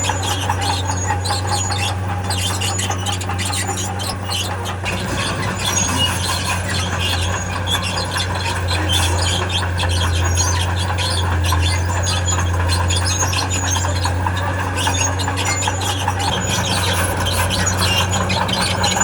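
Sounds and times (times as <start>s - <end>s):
diesel engine drone: 0.0s - 19.0s
steel tracks squeaking and rattling: 0.0s - 19.0s.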